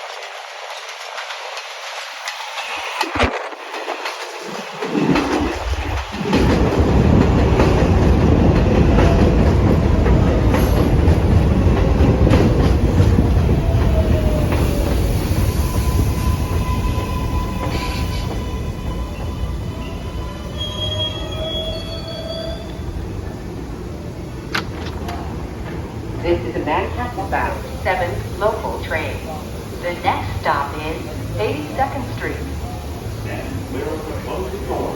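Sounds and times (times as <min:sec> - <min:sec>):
subway train wheels rumbling: 0:00.0 - 0:34.9
wheel and brake squeal: 0:16.0 - 0:22.8.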